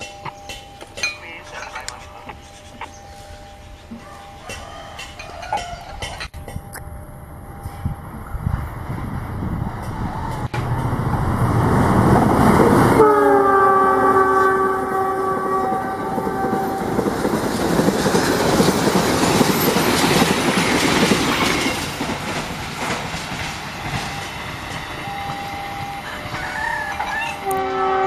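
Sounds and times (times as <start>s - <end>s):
train wheels clattering over joints: 4.3s - 6.6s, 16.1s - 27.4s
locomotive horn: 12.9s - 17.0s, 25.2s - 28.0s.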